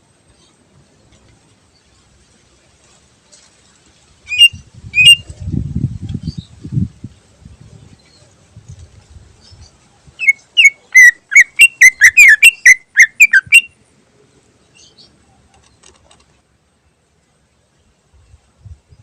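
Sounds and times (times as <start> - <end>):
bird singing sharp whistled notes: 4.3 - 5.3, 10.2 - 13.7.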